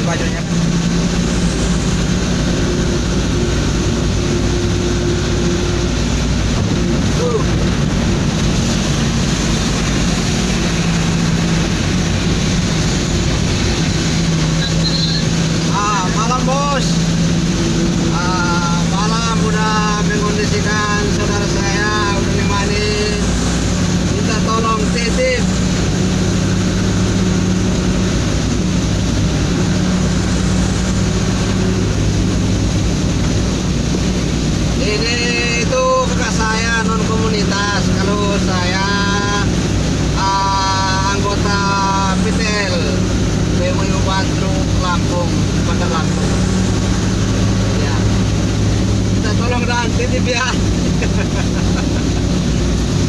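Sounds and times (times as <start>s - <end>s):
road noise hiss: 0.0s - 53.0s
truck engine droning: 0.0s - 53.0s.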